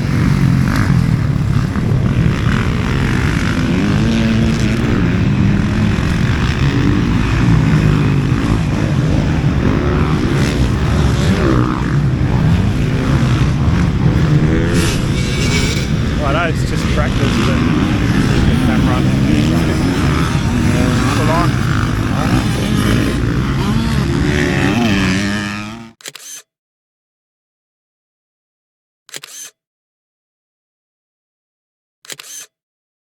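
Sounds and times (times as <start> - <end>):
wind noise: 0.0 - 23.7
vehicle engine running: 0.0 - 24.7.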